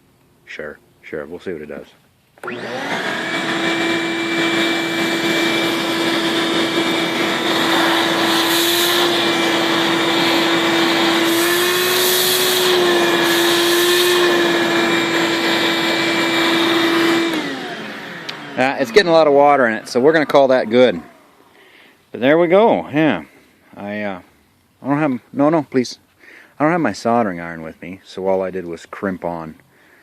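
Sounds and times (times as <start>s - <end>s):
vacuum nozzle sucking air and water: 2.4s - 19.1s
shop vacuum motor whining: 2.4s - 21.4s.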